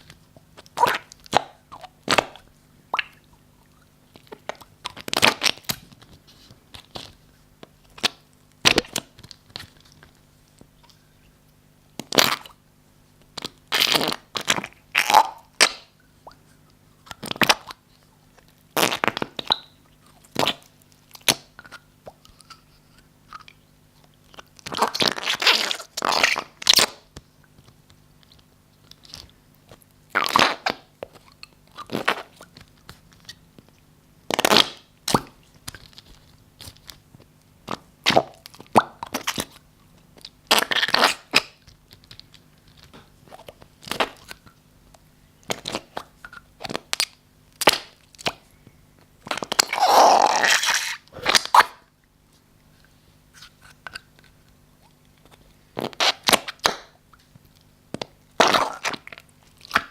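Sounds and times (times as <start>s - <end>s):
slime squelching: 0.0s - 11.0s, 13.2s - 44.6s, 49.2s - 51.9s.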